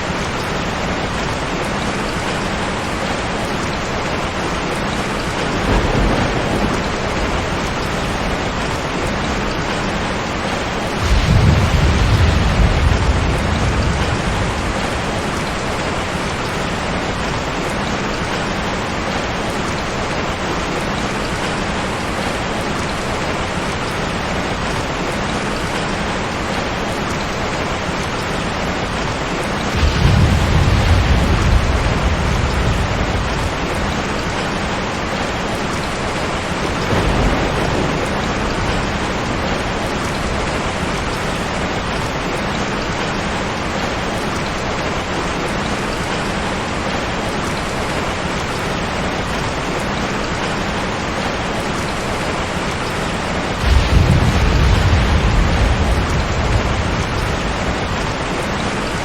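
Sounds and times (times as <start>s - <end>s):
heavy rain: 0.0s - 59.0s
low thunder rumble: 4.6s - 17.8s, 29.4s - 42.2s, 53.2s - 59.0s.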